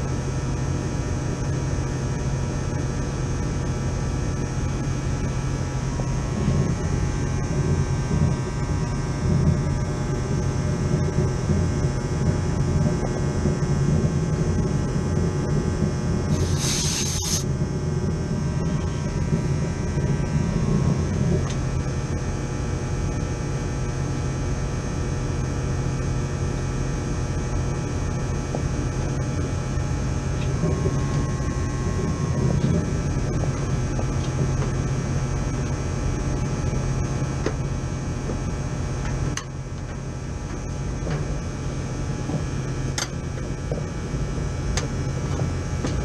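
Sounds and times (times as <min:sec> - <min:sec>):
air conditioner unit humming: 0:00.0 - 0:46.0
short hiss: 0:16.3 - 0:17.4.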